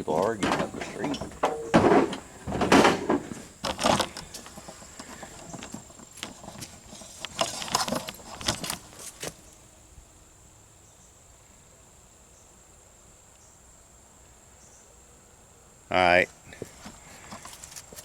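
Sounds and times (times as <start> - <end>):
clinks and rattles: 0.0 - 9.0.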